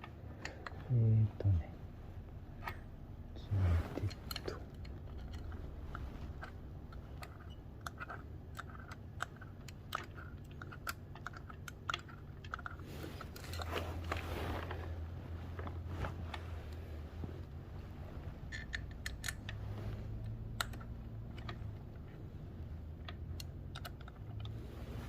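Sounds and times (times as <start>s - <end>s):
steady low hum: 0.0s - 25.0s
metal parts and tools clicking: 4.0s - 14.2s, 18.5s - 19.6s, 23.0s - 24.6s.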